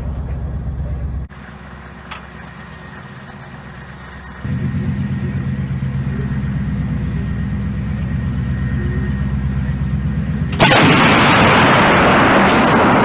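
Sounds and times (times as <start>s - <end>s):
heavy engine running: 0.0s - 13.0s
loud blast: 10.5s - 13.0s.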